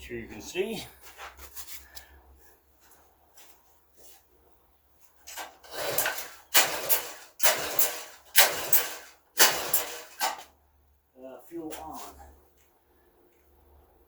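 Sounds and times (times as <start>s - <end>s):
recoil starter cord yanks: 5.3s - 10.5s
small engine turning over: 5.3s - 10.5s.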